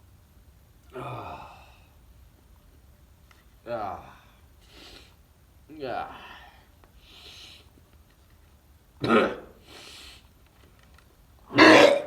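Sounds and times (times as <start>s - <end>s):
man gagging and retching: 11.5s - 12.0s.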